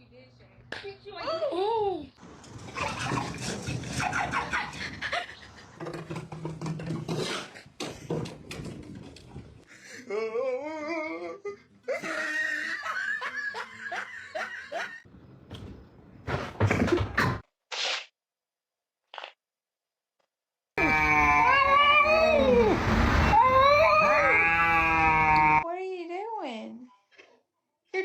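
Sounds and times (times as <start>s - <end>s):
people laughing: 2.6s - 5.8s, 11.9s - 15.1s.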